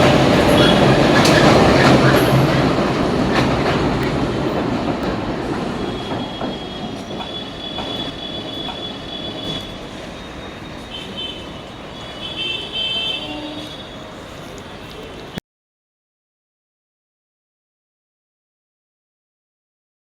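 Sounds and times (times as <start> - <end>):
high wheel squeal: 0.0 - 3.2, 5.6 - 15.4
train wheels clacking over joints: 0.0 - 11.6.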